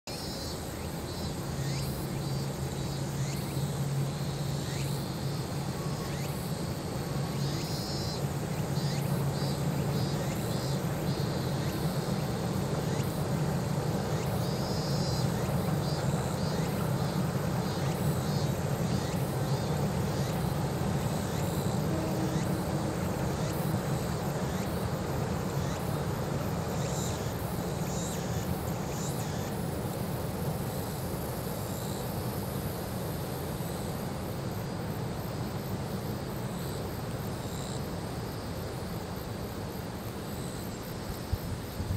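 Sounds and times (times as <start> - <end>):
distant train rumble on bridge: 6.9 - 26.4.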